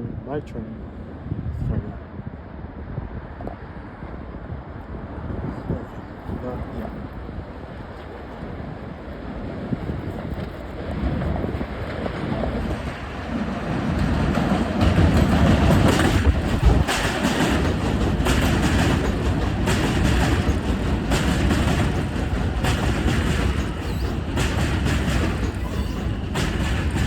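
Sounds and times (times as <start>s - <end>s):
train wheels rumbling on rails: 4.4s - 27.0s
wheels clacking over rail joints: 10.3s - 27.0s.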